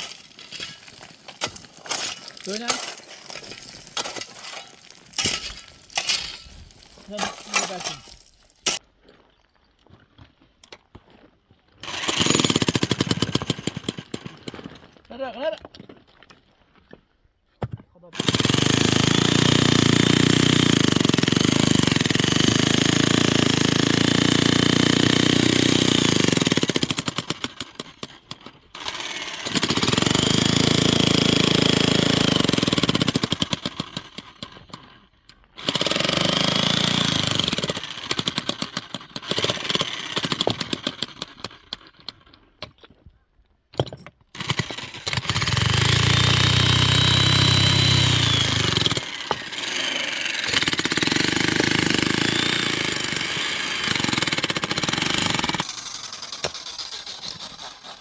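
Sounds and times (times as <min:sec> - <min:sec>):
small motor running: 0:55.2 - 0:58.0.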